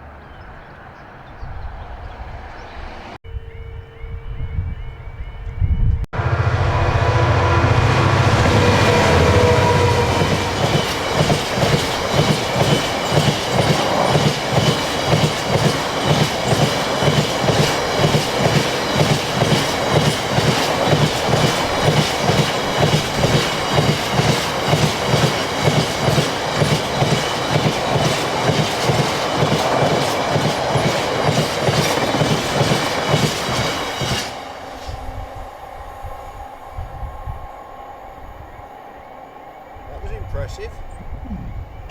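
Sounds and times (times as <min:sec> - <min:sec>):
diesel locomotive engine passing: 0:00.0 - 0:41.9
train wheels clattering over joints: 0:08.4 - 0:34.5.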